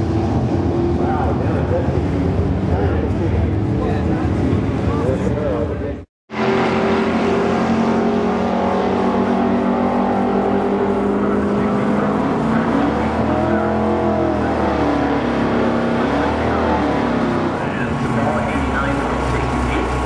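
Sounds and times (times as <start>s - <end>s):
engine revving: 6.3s - 20.0s
car engines idling: 9.6s - 20.0s.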